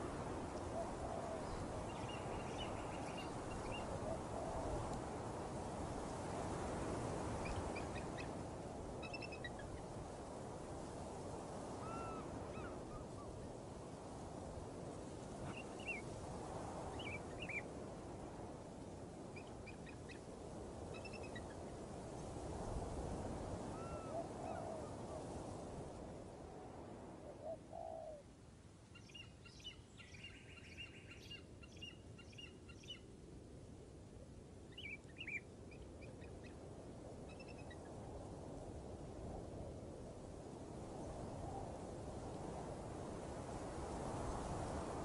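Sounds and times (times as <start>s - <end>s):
low bird calls: 11.8s - 13.3s.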